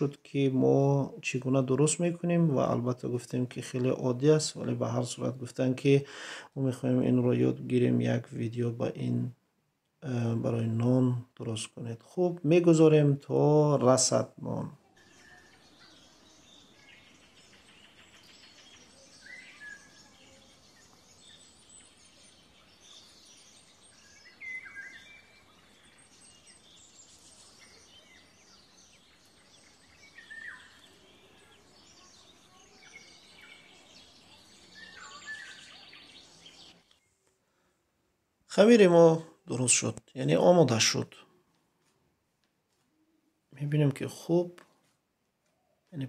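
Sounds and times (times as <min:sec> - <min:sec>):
birds chirping: 0:00.0 - 0:37.9, 0:38.5 - 0:41.8, 0:42.9 - 0:46.0
low steady background hiss: 0:00.0 - 0:46.0.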